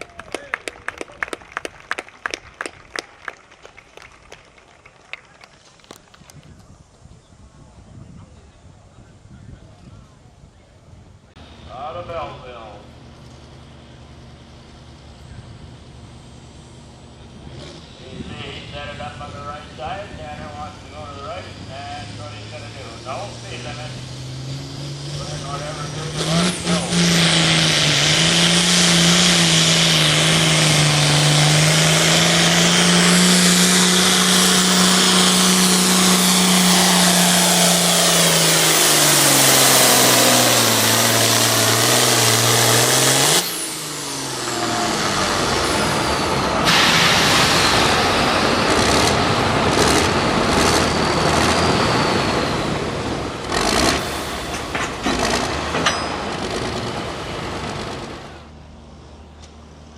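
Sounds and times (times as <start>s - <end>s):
vehicle engine running under load: 0.0s - 59.9s
steady noisy rush: 29.7s - 58.5s.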